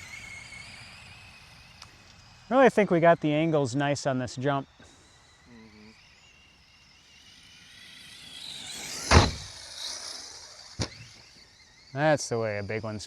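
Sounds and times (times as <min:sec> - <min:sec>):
rc truck motor whine: 0:00.0 - 0:13.0
rc truck landing thud: 0:07.8 - 0:11.6.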